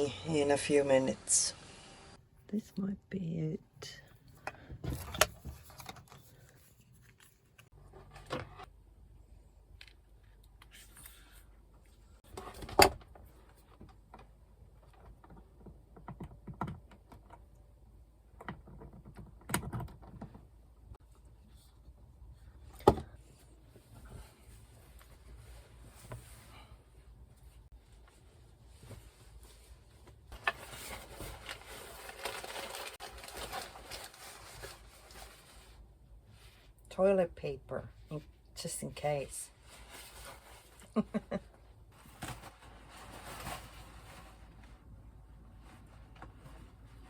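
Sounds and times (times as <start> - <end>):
rustling of items being packed: 23.5 - 36.8, 39.5 - 47.0.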